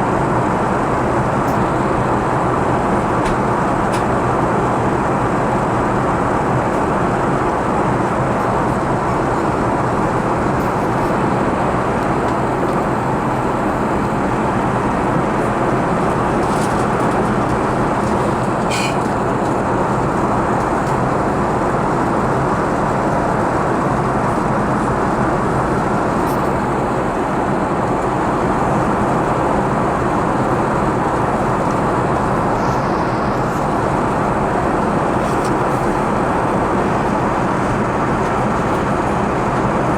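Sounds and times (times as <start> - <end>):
airplane cabin engine rush: 0.0 - 39.9.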